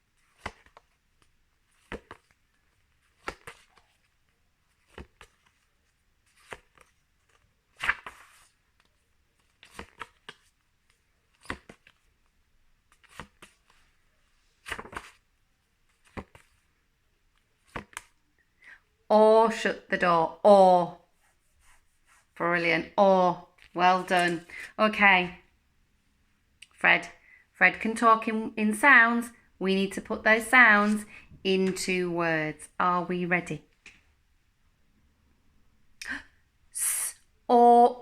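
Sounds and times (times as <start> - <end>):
flashcards being turned over: 0.2 - 16.7, 17.3 - 18.2, 23.6 - 24.6.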